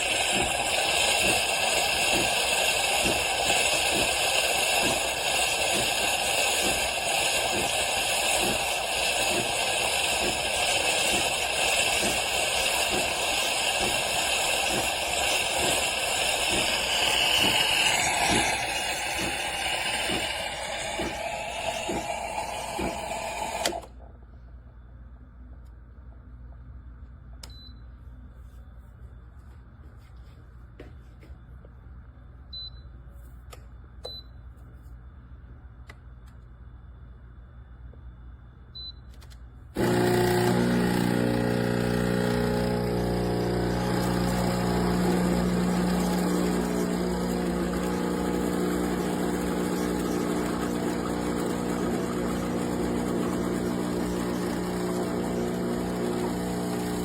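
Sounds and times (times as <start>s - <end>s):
espresso machine pump buzzing: 0.0s - 23.9s, 39.8s - 57.0s.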